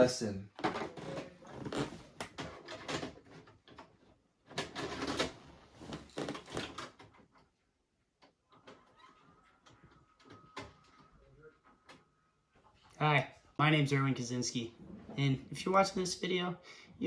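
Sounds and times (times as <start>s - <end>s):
clattering clicks and knocks: 0.6s - 7.4s.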